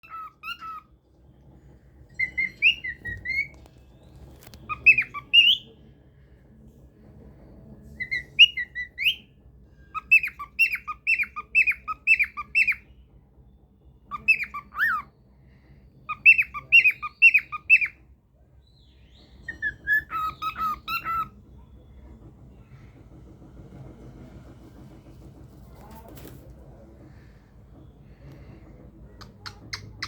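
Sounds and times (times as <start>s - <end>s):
cockatiel whistling: 0.0s - 0.9s, 2.2s - 5.7s, 8.0s - 12.8s, 14.1s - 15.1s, 16.1s - 18.0s, 19.2s - 21.4s.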